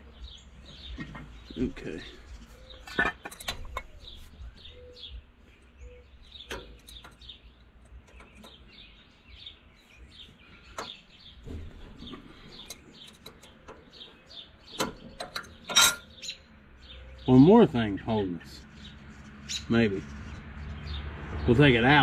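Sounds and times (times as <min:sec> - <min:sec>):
small birds chirping: 0:00.0 - 0:22.0
metallic clicks and knocks: 0:02.8 - 0:04.1, 0:06.4 - 0:08.7, 0:10.7 - 0:16.3.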